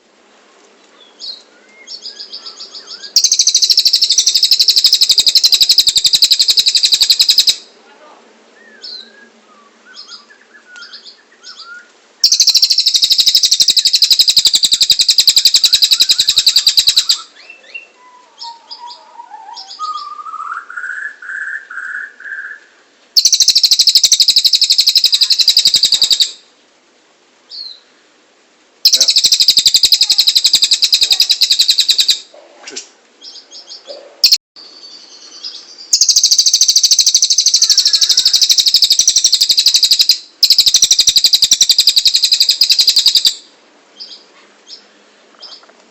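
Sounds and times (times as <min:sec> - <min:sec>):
bird chirps: 0:01.0 - 0:07.7, 0:08.6 - 0:26.4, 0:28.8 - 0:32.3, 0:33.2 - 0:45.6
bird trilling: 0:01.2 - 0:07.7, 0:10.0 - 0:22.6, 0:23.2 - 0:26.4, 0:28.8 - 0:32.3, 0:33.2 - 0:34.4, 0:35.1 - 0:44.8
bird warbling: 0:01.9 - 0:07.7, 0:10.8 - 0:21.0, 0:23.2 - 0:26.4, 0:28.8 - 0:32.4, 0:33.2 - 0:34.4, 0:35.4 - 0:44.2.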